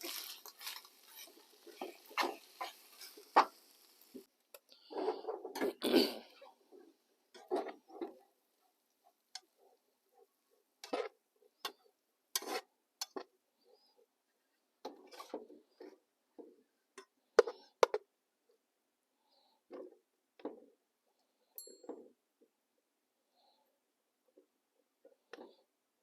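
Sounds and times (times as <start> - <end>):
small objects clicking and knocking: 0.0 - 5.8.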